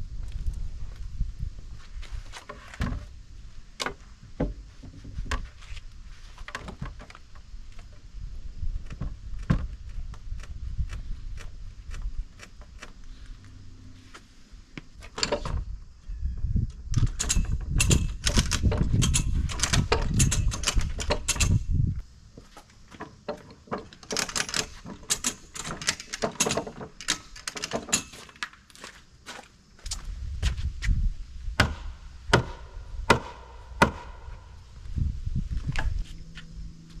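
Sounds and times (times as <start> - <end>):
low rumble: 30.1 - 37.0.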